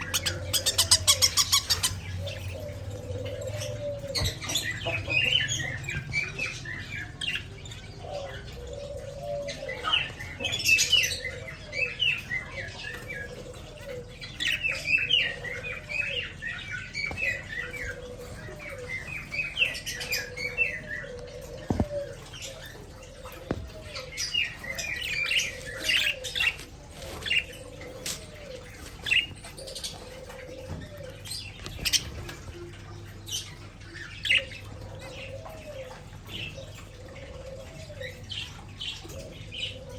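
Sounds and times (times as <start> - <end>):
budgerigars chattering: 0.0 - 6.6.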